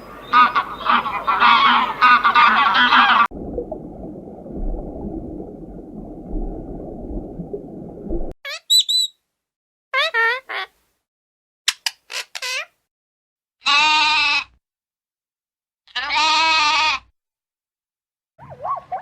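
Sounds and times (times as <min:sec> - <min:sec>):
geese honking: 0:00.1 - 0:03.3
muffled low rumbling: 0:03.3 - 0:08.3
short high calls: 0:08.5 - 0:09.2.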